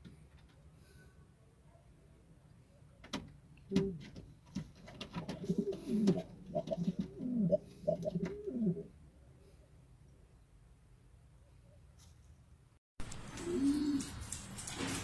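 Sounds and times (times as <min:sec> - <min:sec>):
pigeon cooing: 0:05.4 - 0:08.9, 0:13.3 - 0:14.2.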